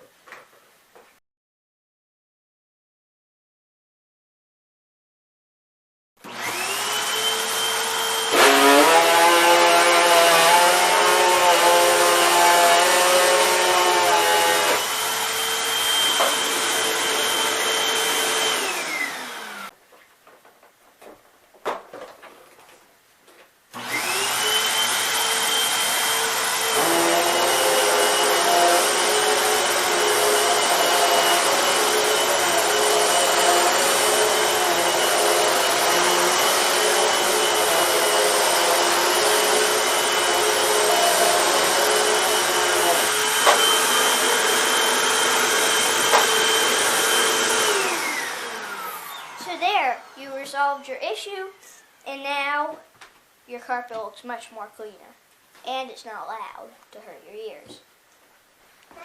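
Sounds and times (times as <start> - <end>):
vacuum cleaner motor whine: 6.2 - 19.7, 23.8 - 50.8.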